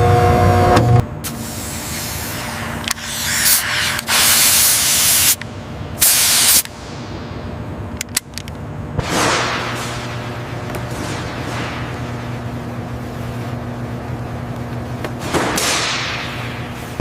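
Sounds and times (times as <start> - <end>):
steady low hum: 0.0 - 17.0
loud hissing bursts: 1.2 - 5.4, 6.0 - 6.6.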